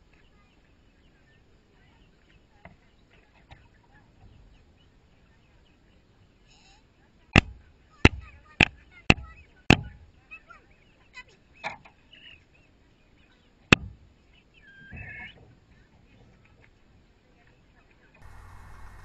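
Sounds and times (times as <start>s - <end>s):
hens clucking and chirping: 14.4s - 15.4s.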